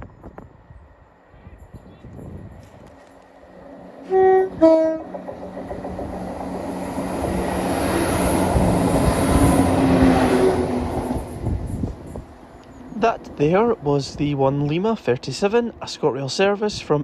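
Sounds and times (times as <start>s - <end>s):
train rumbling past: 0.0s - 16.2s
two-tone train horn: 4.0s - 5.2s.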